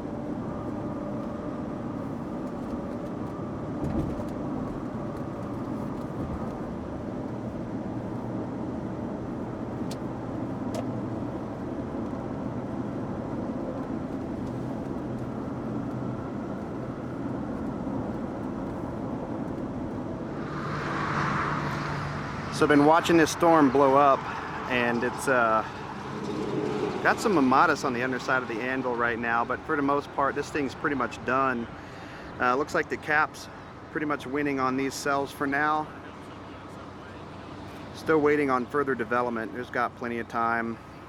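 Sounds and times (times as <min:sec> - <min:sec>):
car engine hum: 0:00.0 - 0:41.0
road noise: 0:00.0 - 0:41.0
low thump: 0:03.8 - 0:04.3.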